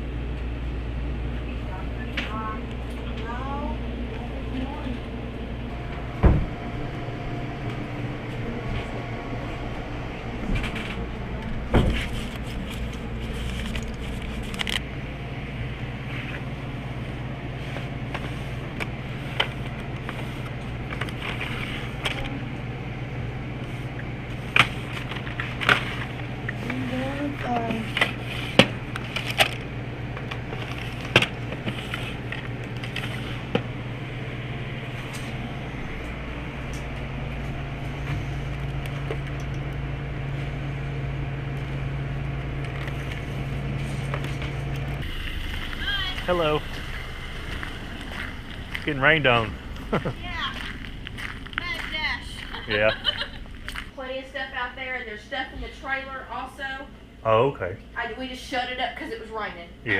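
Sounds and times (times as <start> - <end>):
car engine and road noise: 27.6 - 52.6.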